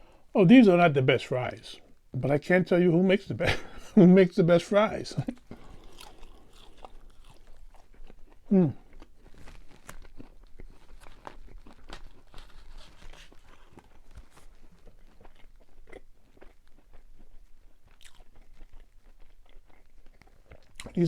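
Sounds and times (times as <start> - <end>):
chewing crunchy fries: 4.6 - 21.0.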